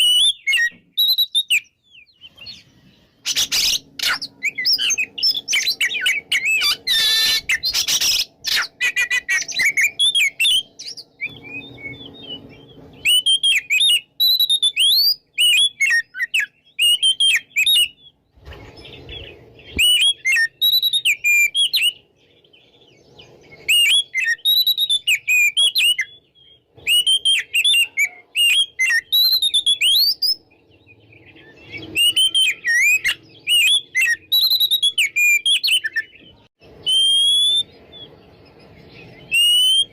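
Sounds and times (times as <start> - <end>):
magpie-robin singing: 0.0 - 39.9
harsh rasping bird notes: 2.2 - 22.1.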